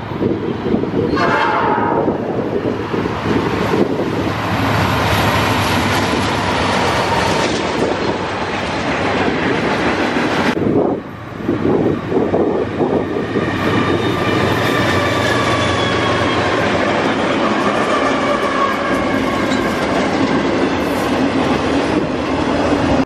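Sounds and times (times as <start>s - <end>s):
wheels on rail: 0.0s - 23.0s
train horn blast: 1.1s - 2.3s, 17.4s - 19.8s.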